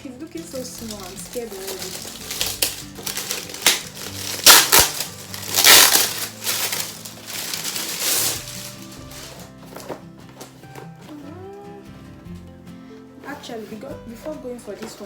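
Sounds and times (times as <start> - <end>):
packaging crinkling and rustling: 0.4 - 11.1.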